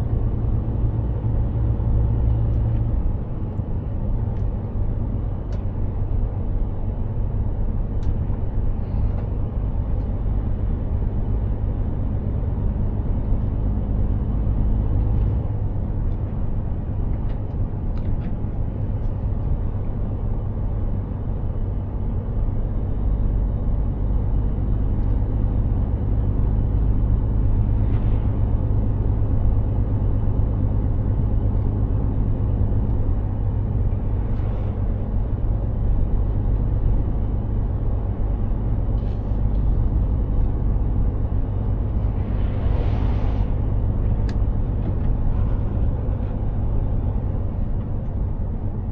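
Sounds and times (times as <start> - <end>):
truck diesel engine droning: 0.0 - 48.9
tyres rumbling on road: 0.0 - 48.9.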